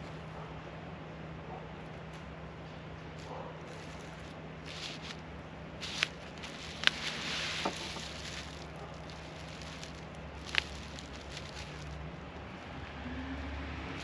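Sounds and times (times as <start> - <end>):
steady low hum: 0.0 - 14.0
brief rustling: 3.2 - 5.2, 5.8 - 12.0.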